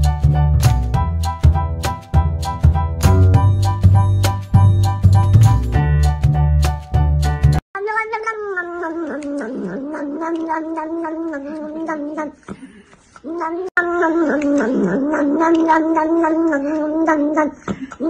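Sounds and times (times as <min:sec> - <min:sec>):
cat yowling: 0:07.8 - 0:12.4, 0:13.2 - 0:17.6.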